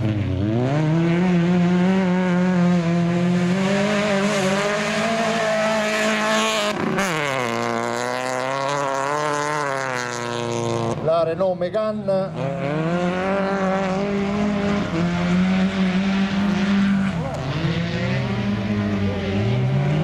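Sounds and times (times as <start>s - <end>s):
race car engine running hard: 0.0s - 20.0s.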